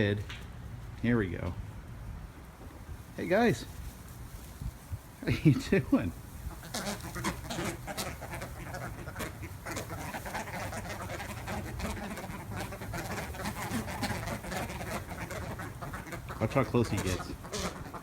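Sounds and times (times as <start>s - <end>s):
flock of birds calling: 5.2s - 18.0s.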